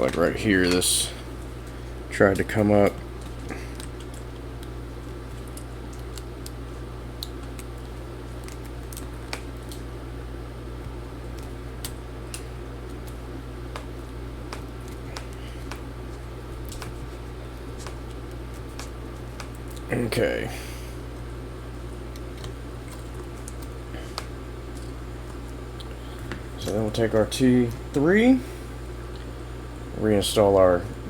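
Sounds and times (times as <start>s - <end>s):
steady low hum: 0.0s - 31.0s
faint clicks and taps: 10.8s - 19.9s.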